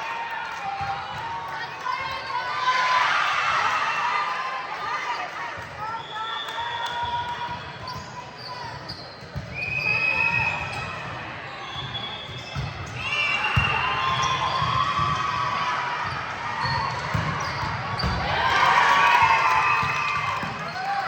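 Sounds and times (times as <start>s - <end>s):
shoes squeaking on court floor: 7.8s - 10.1s, 16.1s - 18.2s.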